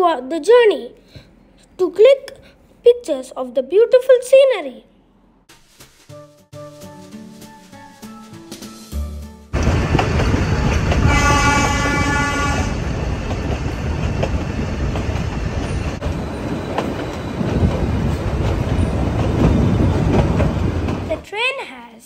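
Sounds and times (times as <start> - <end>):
train wheels rumbling on track: 9.6 - 21.2
train horn: 11.0 - 12.9.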